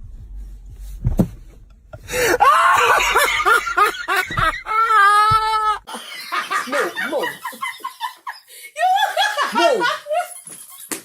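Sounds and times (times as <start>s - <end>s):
person laughing loudly: 2.1s - 10.6s.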